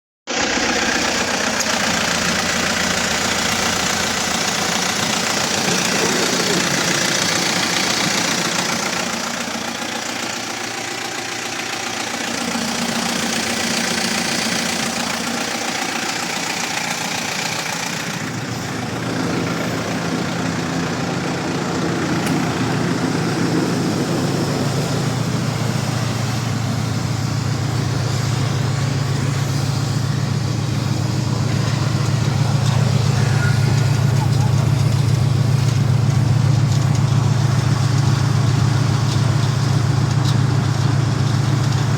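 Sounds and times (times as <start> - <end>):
bus engine idling: 0.3 - 41.9.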